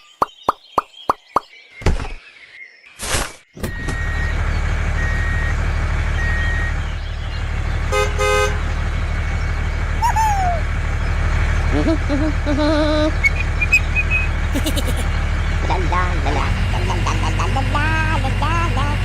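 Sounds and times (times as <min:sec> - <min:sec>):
truck engine running: 0:03.8 - 0:19.0
truck horn toots: 0:07.8 - 0:08.7.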